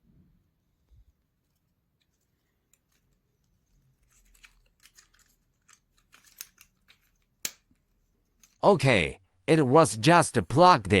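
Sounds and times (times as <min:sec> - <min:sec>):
wooden model parts clicking: 0:04.1 - 0:08.6.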